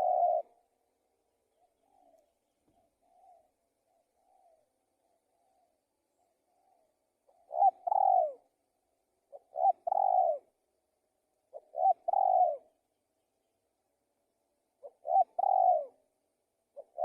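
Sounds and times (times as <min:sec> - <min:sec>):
dove cooing: 0:00.0 - 0:00.6, 0:01.5 - 0:08.6, 0:09.3 - 0:10.6, 0:11.5 - 0:12.8, 0:14.8 - 0:16.1, 0:16.7 - 0:17.0.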